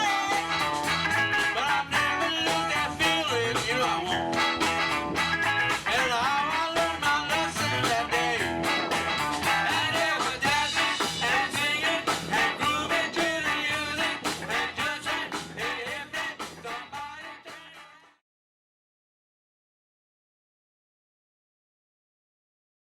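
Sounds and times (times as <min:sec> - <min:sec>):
person singing: 0:00.0 - 0:04.7, 0:05.7 - 0:18.2
band playing: 0:00.0 - 0:17.2
electric guitar: 0:00.0 - 0:17.2.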